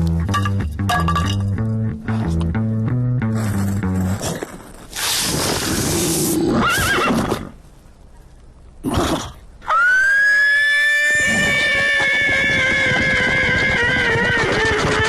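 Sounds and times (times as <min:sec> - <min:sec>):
warbling whinny-like cry: 0:05.9 - 0:07.4, 0:09.6 - 0:15.0
high-pitched wail: 0:09.7 - 0:15.0.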